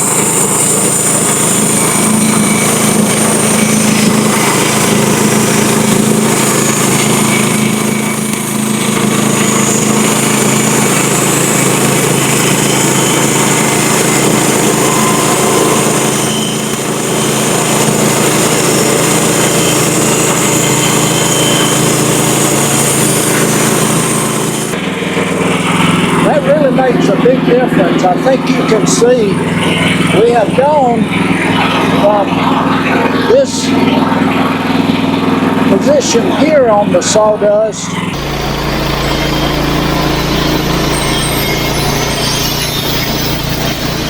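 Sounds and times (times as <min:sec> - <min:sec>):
bandsaw mill motor running: 0:00.0 - 0:44.0.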